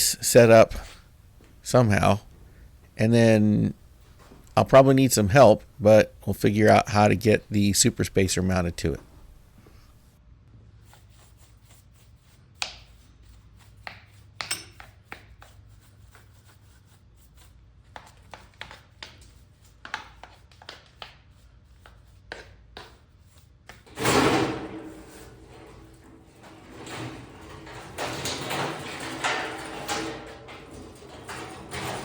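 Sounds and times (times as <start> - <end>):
heavy metal piece scraping: 23.9 - 32.0.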